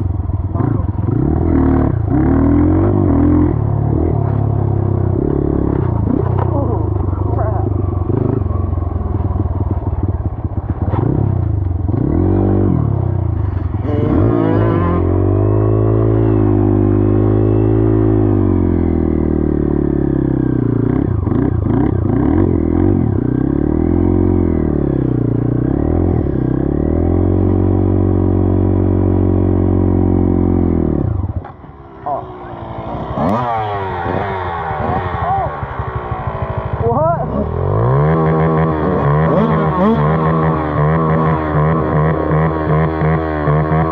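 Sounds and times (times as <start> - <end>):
dirt bike engine revving: 0.0 - 43.9.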